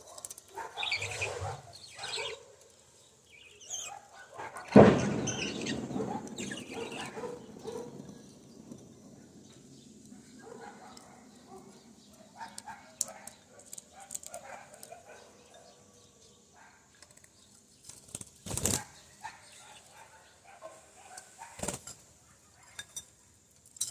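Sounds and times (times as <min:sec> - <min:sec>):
parrots chirping softly: 0:00.0 - 0:07.9.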